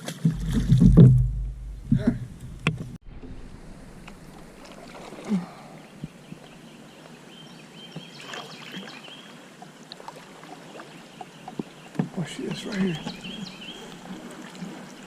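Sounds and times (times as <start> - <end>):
water lapping around canoe: 0.0 - 2.0, 3.2 - 15.0
low bump: 0.2 - 4.8
gear knocking against hull: 0.3 - 3.0.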